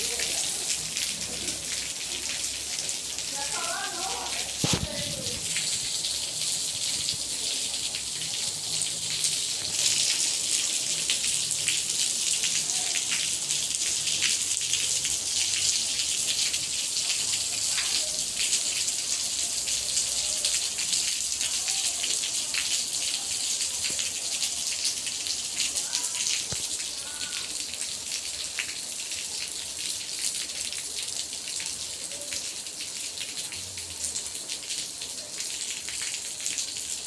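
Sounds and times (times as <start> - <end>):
heavy rain hissing: 0.0 - 15.9
raindrops pattering on surfaces: 0.0 - 37.0.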